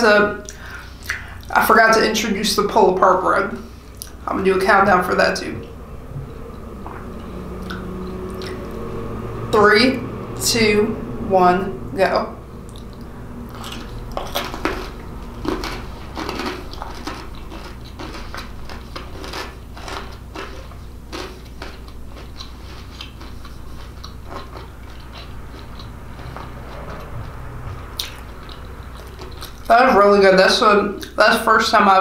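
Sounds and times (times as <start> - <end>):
chewing mouth clicks: 12.7 - 27.4, 28.0 - 29.7.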